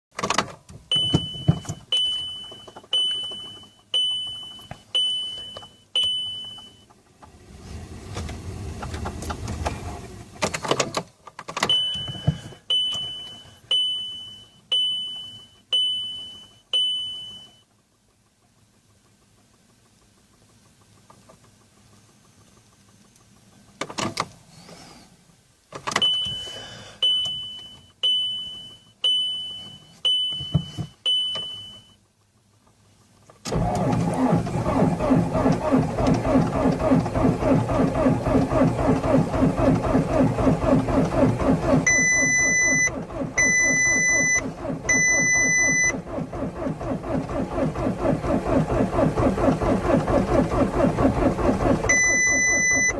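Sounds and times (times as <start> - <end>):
car warning chime beeping: 0.9 - 6.9, 11.7 - 17.6, 26.0 - 32.0, 38.0 - 46.7, 51.9 - 52.9.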